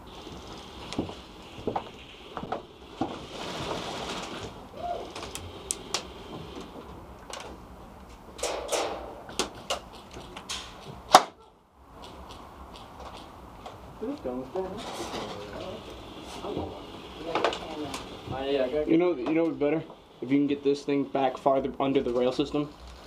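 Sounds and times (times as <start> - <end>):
sharp clicks and knocks: 6.0 - 11.3.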